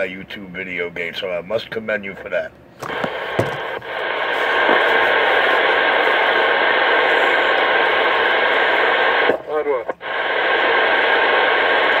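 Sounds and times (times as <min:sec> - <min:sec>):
radio static hiss: 0:02.8 - 0:12.0.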